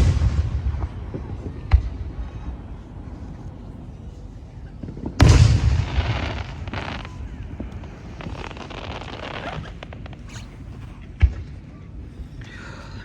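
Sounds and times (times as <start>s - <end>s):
fireworks exploding: 0.0s - 2.4s, 4.8s - 11.4s.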